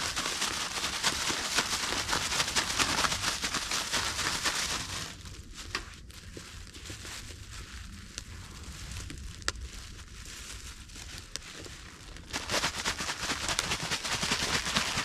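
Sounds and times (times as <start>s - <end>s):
bag of fish and flour shaken: 0.0s - 15.0s.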